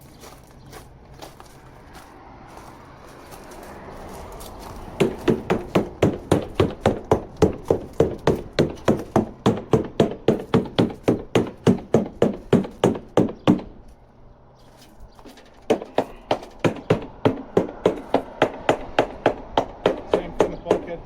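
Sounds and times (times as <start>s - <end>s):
hammer tapping on boat hull: 5.0s - 13.8s, 15.6s - 21.0s.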